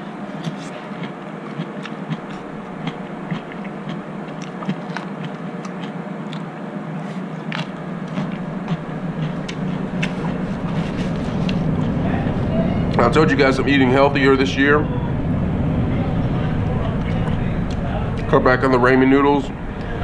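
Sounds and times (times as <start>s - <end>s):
steady background hum: 0.0s - 20.0s
chewing crisp salad: 0.2s - 11.9s
mouth clicks: 7.5s - 11.6s.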